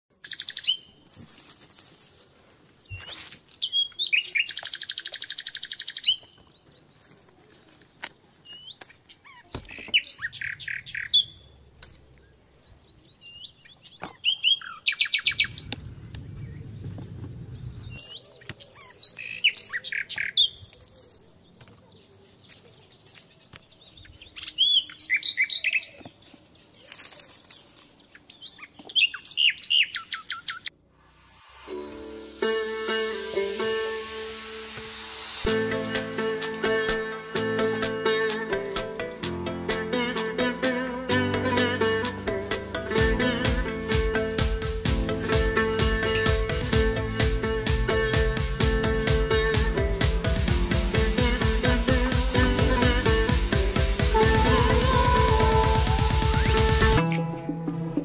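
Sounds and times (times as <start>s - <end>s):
songbird trilling and chirping: 0.2s - 1.0s, 2.9s - 7.0s.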